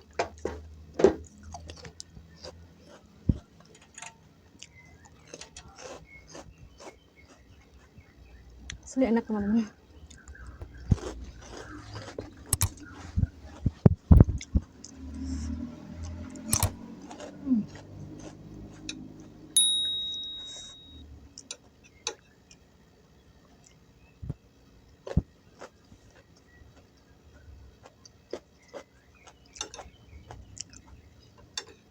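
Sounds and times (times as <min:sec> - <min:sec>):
ringing clink: 0:19.6 - 0:21.0.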